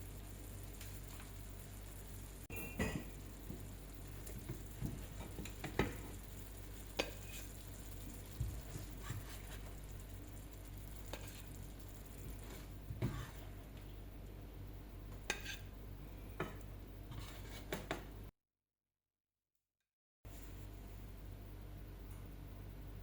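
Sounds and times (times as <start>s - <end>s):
meat sizzling in a pan: 0.0s - 13.6s.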